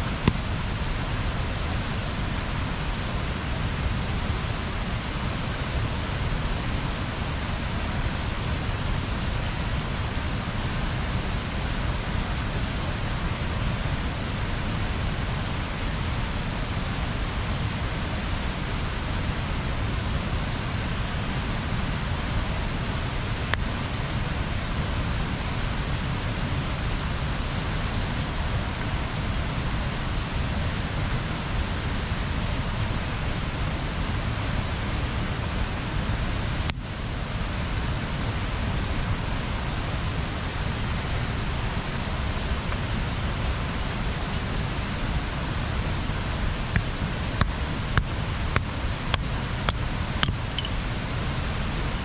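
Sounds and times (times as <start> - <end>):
fire crackling pops: 0.2 - 0.7.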